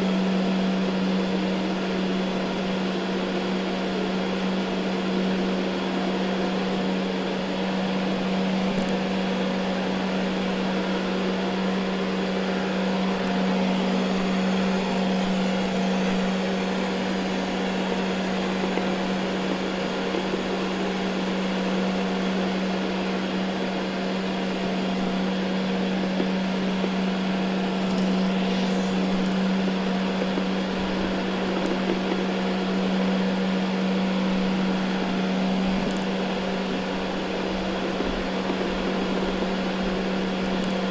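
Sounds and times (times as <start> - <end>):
robot vacuum running: 27.4 - 31.6.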